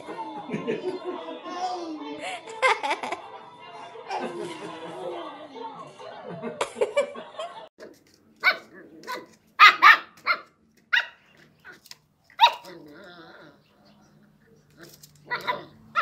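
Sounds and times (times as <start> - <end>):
puppy barking: 8.4 - 11.8, 12.4 - 12.9, 15.2 - 16.0.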